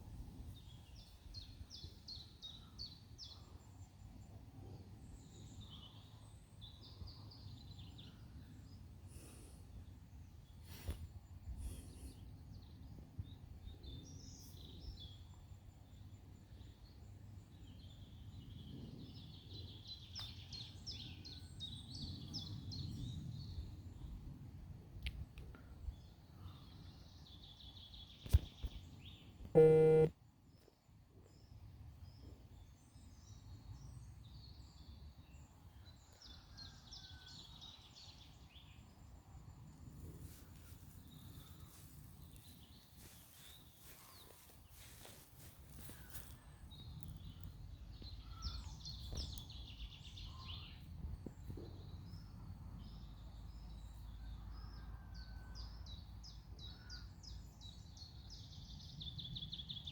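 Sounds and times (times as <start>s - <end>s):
small birds chirping: 26.0s - 30.1s, 38.1s - 54.2s
loud buzzy tone: 29.6s - 30.1s.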